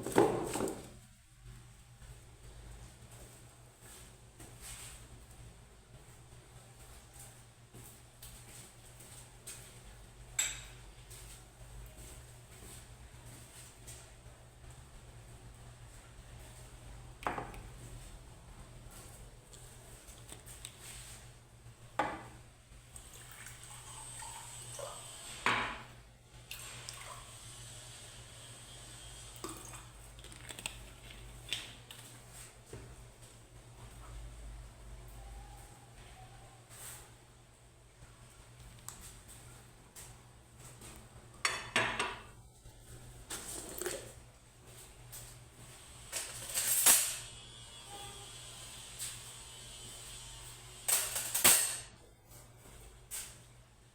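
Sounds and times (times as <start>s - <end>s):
dishes and cutlery clinking: 10.4s - 10.8s, 50.9s - 51.9s
faint running water: 22.2s - 28.0s, 29.2s - 30.5s, 43.2s - 44.4s
dishes clattering: 41.5s - 42.3s
dishes clattering and splashing: 43.4s - 44.2s.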